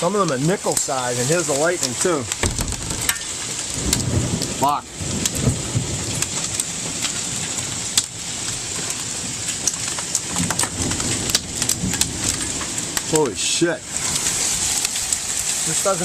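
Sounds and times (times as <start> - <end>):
hailstones clacking: 0.0 - 16.0
heavy rain hissing: 0.0 - 16.0.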